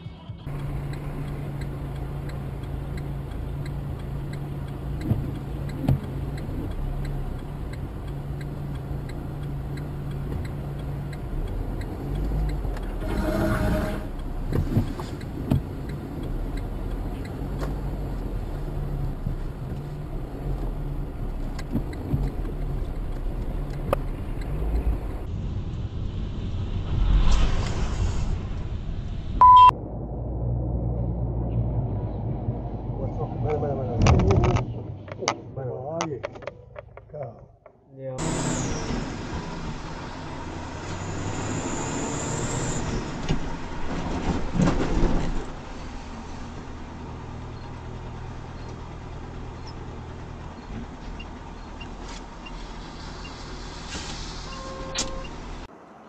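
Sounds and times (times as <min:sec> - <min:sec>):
vehicle engine and road noise: 0:00.0 - 0:56.0
low hum: 0:23.0 - 0:34.0
short loud beep: 0:29.4 - 0:29.7.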